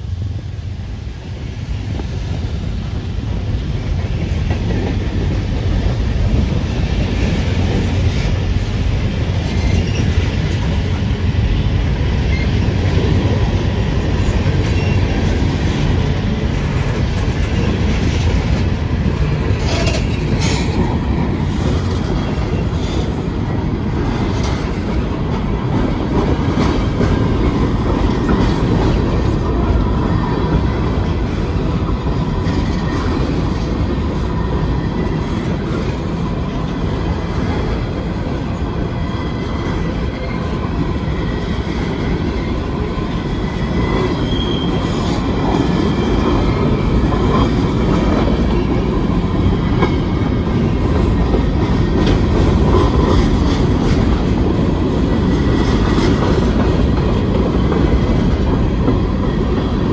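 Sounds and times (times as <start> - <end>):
train rumbling on rails: 0.0 - 59.9
clanks and wheel squeals: 9.4 - 11.0, 12.3 - 12.9, 14.2 - 16.0, 19.4 - 54.2.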